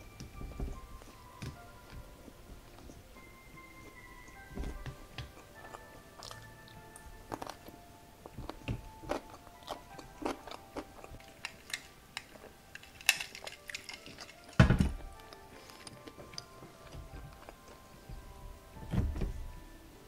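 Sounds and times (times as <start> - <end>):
soft background music: 0.0 - 20.0
crunchy chewing of pickled radish: 3.8 - 17.9.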